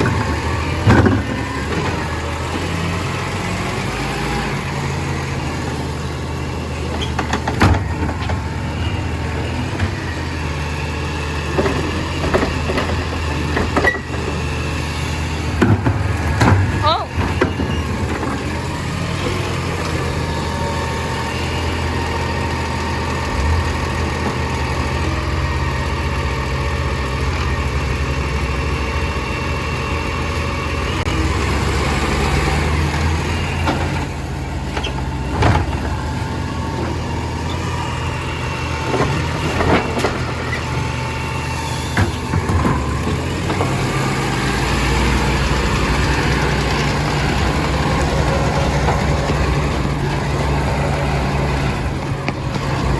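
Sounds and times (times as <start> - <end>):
truck engine running: 0.0 - 52.9
sharp knocks and clunks: 7.0 - 8.7, 15.4 - 19.5, 41.9 - 43.9.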